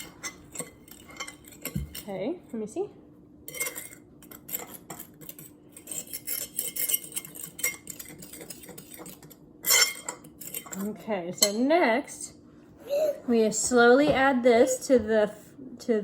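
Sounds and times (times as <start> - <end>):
utensil clinking against bowl: 0.0 - 2.1, 3.5 - 11.7
utensil scraping in mixing bowl: 3.5 - 11.0.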